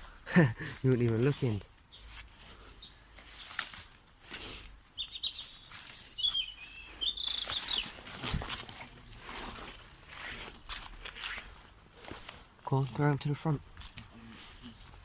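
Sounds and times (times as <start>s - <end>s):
light knocks and crunches: 0.8s - 4.9s, 7.6s - 15.0s
small bird chirping: 1.8s - 2.2s, 2.8s - 3.0s, 4.8s - 8.4s.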